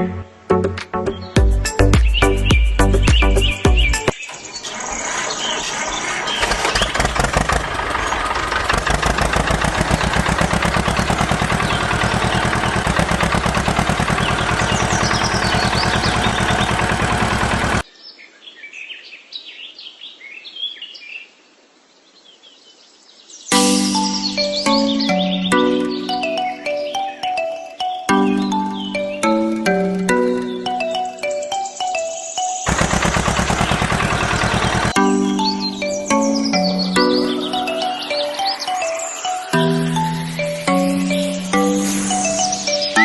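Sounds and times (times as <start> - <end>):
birds chirping: 1.0 - 21.3, 22.0 - 43.0
small engine running: 4.3 - 17.8, 32.7 - 35.1.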